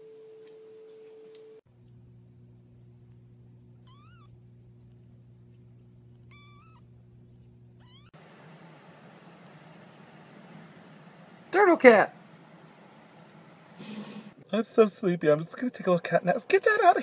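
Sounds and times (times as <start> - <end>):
steady low hum: 1.6 - 14.5
cat meowing: 3.8 - 4.3, 6.3 - 6.9, 7.8 - 8.2.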